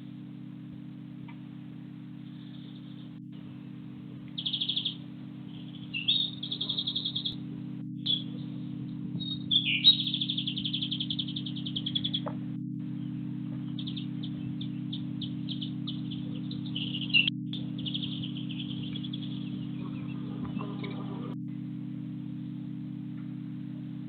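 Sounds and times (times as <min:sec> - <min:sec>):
songbird trill: 0:00.0 - 0:24.0
songbirds chirping: 0:00.0 - 0:24.0
steady low hum: 0:00.0 - 0:24.0.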